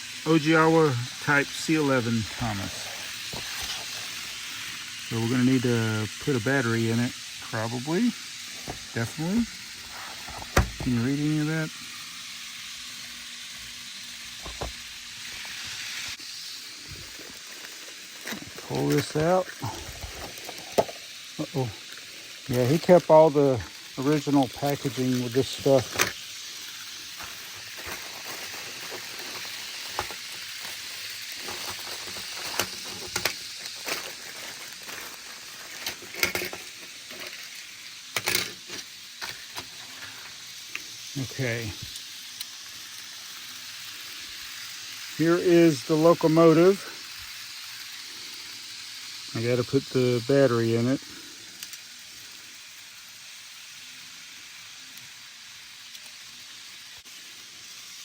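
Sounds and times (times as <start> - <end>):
steady background hiss: 0.0 - 58.0
packaging crinkling: 14.4 - 37.8.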